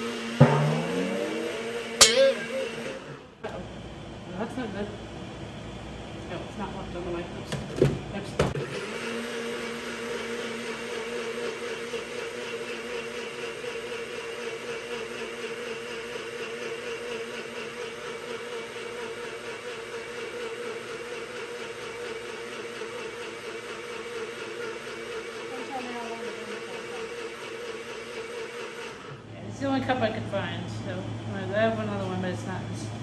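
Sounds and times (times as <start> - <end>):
blender motor running: 8.8 - 10.4.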